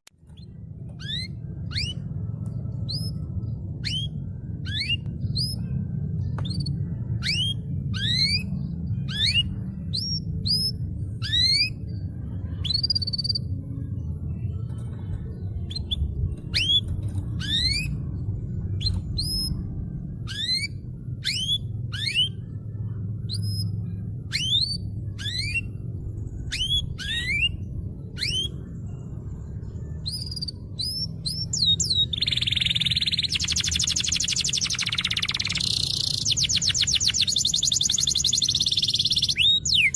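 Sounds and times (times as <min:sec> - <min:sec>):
low steady hum: 0:00.1 - 0:39.9
canary singing: 0:00.2 - 0:39.9
canary trill: 0:00.2 - 0:39.9.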